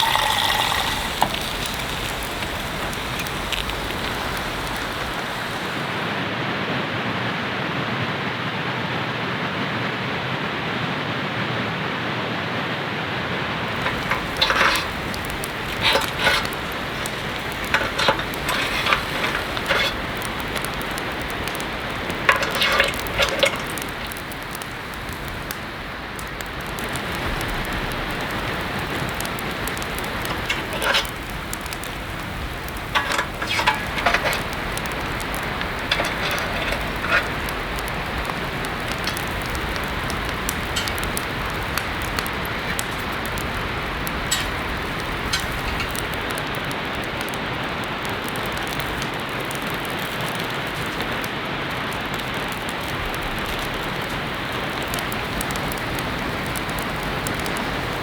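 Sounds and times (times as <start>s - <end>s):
heavy rain falling: 0.0s - 58.0s
bursts of clatter: 13.7s - 25.6s, 26.8s - 46.7s.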